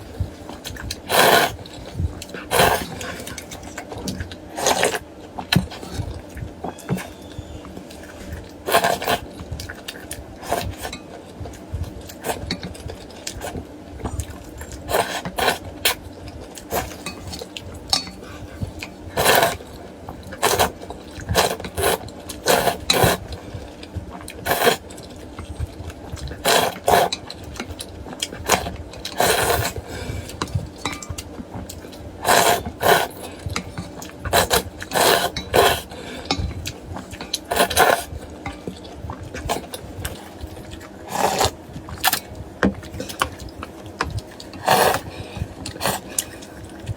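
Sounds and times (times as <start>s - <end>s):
slurping noodles and broth: 0.8s - 3.6s, 7.9s - 9.7s, 10.4s - 10.9s, 14.8s - 16.0s, 18.2s - 23.4s, 24.4s - 24.9s, 26.2s - 27.3s, 28.3s - 30.6s, 31.9s - 38.6s, 39.3s - 42.2s, 44.4s - 46.9s
utensils clinking against bowl: 16.7s - 19.7s, 28.5s - 38.9s.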